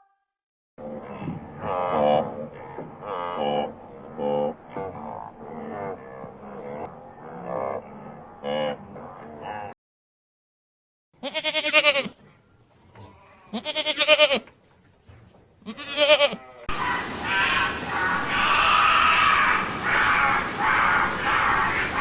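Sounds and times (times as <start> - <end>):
goat bleating: 11.2 - 12.2, 13.0 - 14.5, 15.6 - 16.7.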